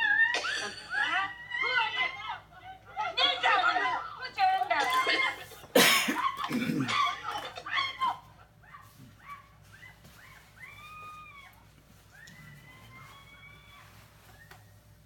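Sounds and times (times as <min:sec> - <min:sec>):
person crying out: 0:06.1 - 0:08.2
drawn-out wailing: 0:10.2 - 0:14.6.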